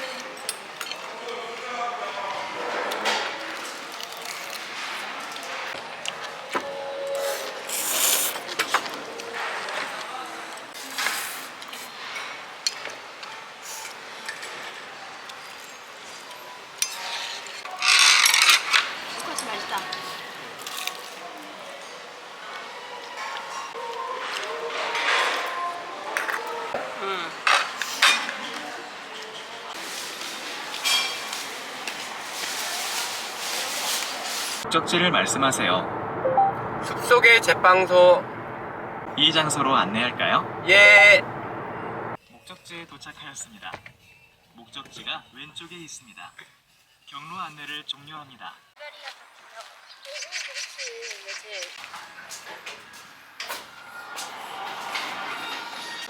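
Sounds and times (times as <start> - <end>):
crinkly rustle: 3.4 - 5.7, 29.8 - 34.6
dishes and cutlery clinking: 10.8 - 21.2, 27.5 - 29.5, 30.3 - 33.7
low speech: 34.7 - 42.2.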